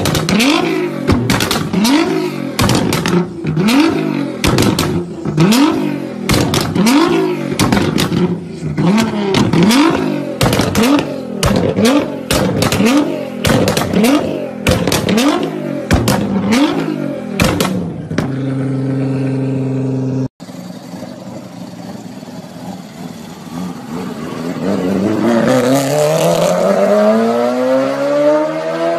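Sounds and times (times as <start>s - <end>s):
exhaust cracks and pops: 0.0s - 1.8s
car engine revving: 0.0s - 28.9s.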